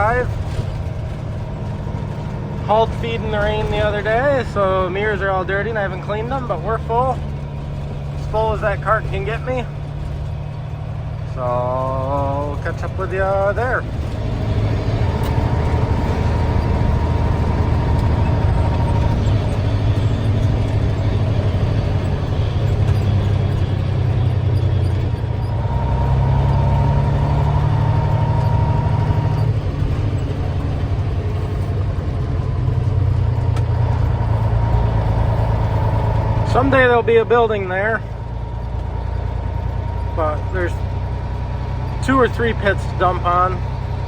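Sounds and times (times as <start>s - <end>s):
truck engine running: 0.0s - 44.0s.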